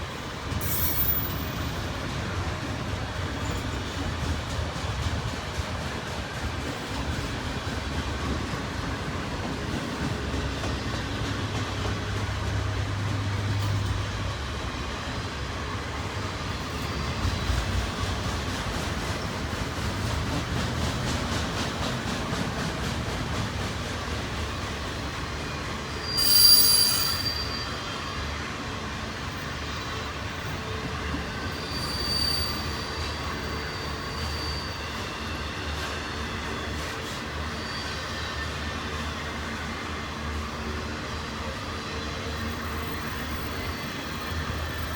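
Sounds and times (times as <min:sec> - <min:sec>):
train wheels rumbling on rail: 0:00.0 - 0:44.9
high wheel squeal: 0:00.6 - 0:02.0, 0:25.4 - 0:28.5, 0:29.6 - 0:39.5.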